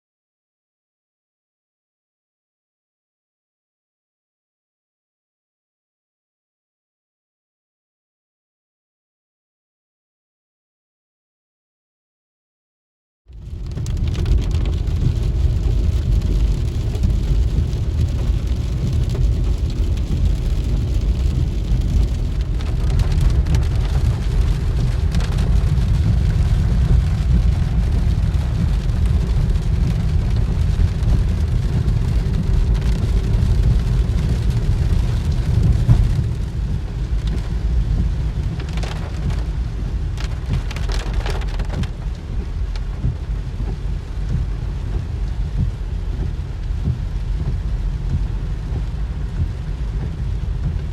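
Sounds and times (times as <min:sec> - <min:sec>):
deep rumble: 0:13.3 - 0:50.9
heavy rain: 0:13.3 - 0:50.9.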